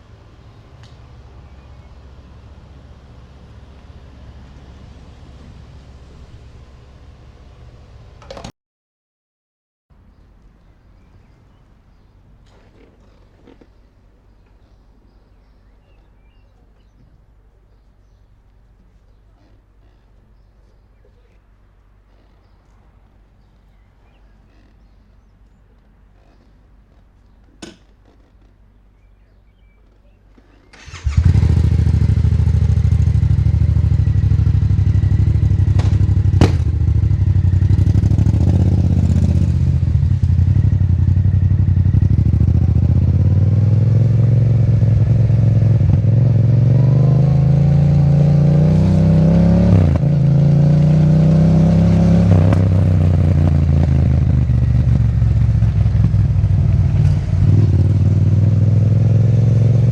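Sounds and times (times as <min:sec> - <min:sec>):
motorcycle engine revving: 0:30.7 - 0:59.9.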